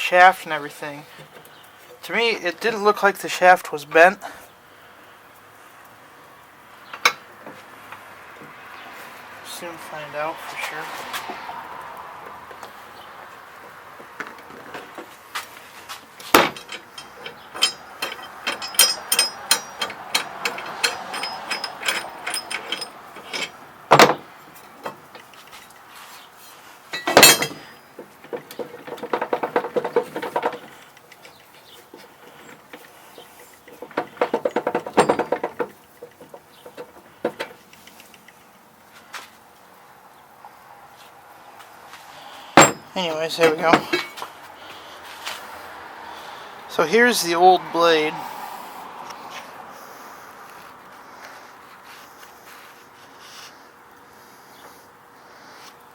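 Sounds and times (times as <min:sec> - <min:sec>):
metal knocks and clanks: 0:16.2 - 0:25.4, 0:27.0 - 0:32.9, 0:33.6 - 0:37.6, 0:42.6 - 0:44.3
clattering: 0:16.2 - 0:25.7, 0:26.9 - 0:37.6, 0:42.6 - 0:44.3.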